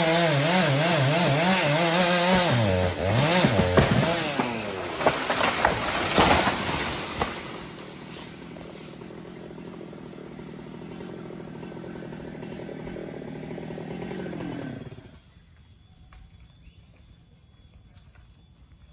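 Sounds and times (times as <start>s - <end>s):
chainsaw running: 0.0s - 15.4s
sharp cracks: 3.2s - 8.3s.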